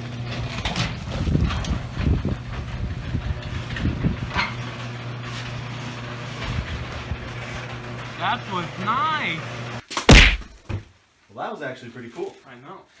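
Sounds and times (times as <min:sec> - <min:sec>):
garage door opener motor hum: 0:00.0 - 0:09.8
garage door rumbling and knocking: 0:00.1 - 0:08.2.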